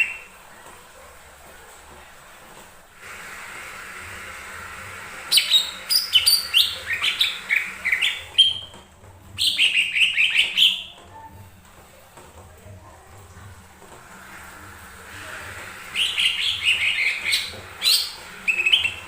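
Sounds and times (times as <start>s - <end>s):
steady hiss: 2.5s - 8.2s
bird singing whistled notes: 9.4s - 10.9s, 16.0s - 19.0s.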